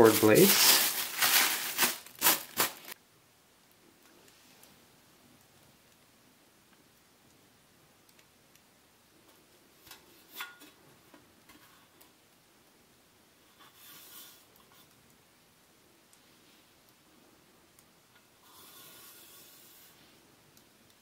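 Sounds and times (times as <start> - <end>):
packaging rustling: 0.0 - 3.0.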